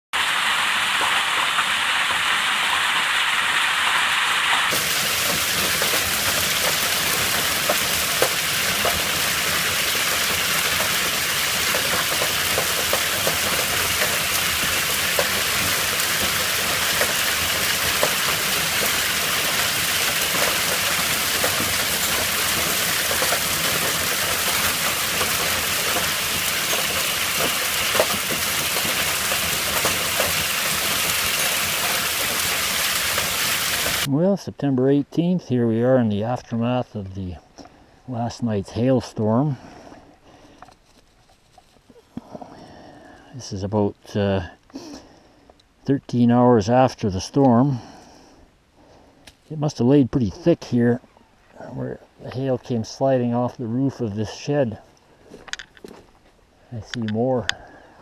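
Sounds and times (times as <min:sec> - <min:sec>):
heavy rain hissing: 0:00.2 - 0:34.1.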